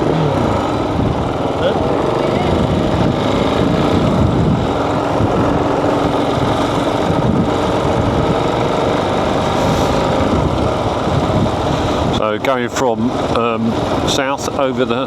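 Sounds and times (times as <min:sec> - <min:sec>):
motorcycle engine running: 0:00.0 - 0:15.0
road and wind noise: 0:00.0 - 0:15.0.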